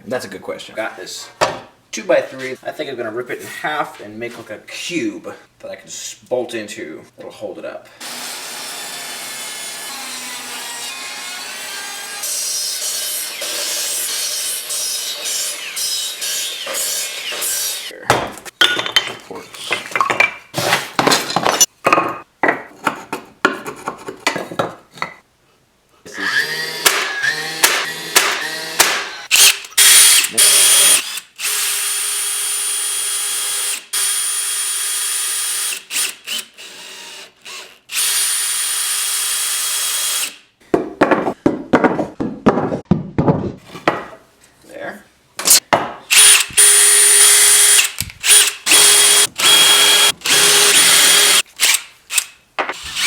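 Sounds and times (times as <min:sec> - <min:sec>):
power drill whining in wood: 0:46.1 - 0:53.0.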